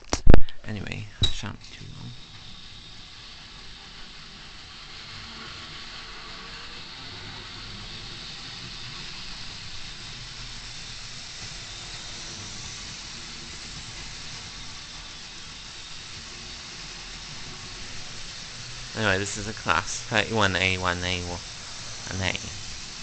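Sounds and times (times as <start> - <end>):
model train motor whirring: 1.8 - 23.0.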